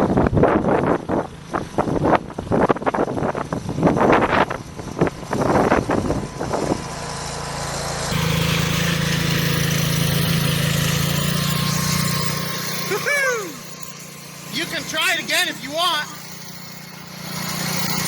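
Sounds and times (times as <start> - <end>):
garden tractor engine running: 0.8 - 18.0
rough bursts of noise: 8.1 - 18.0.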